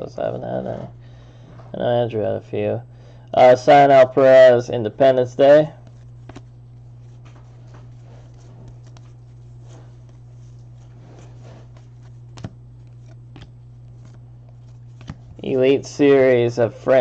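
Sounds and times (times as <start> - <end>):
steady low hum: 0.0 - 17.0
trading cards rustling: 5.8 - 17.0.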